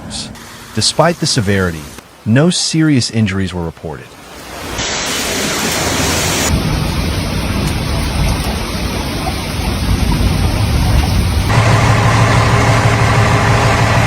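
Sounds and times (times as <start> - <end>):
loud steady rushing noise: 4.8 - 14.0.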